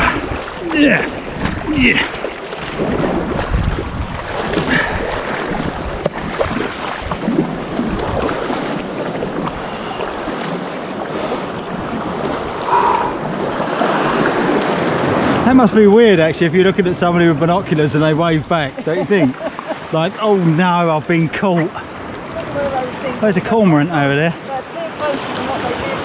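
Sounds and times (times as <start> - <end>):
wind buffeting the microphone: 0.0 - 20.0
water splashing around a kayak: 0.0 - 26.0.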